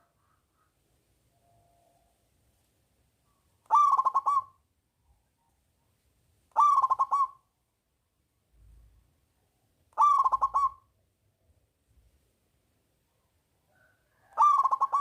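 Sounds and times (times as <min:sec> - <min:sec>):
dove cooing: 0:03.7 - 0:04.6, 0:06.5 - 0:07.4, 0:10.0 - 0:10.9, 0:14.2 - 0:15.0.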